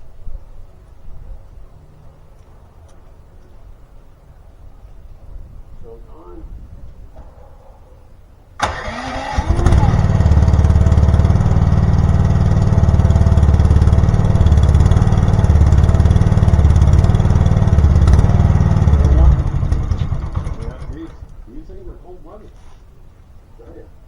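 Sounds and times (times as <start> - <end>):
gas engine starting and running: 8.6 - 21.5.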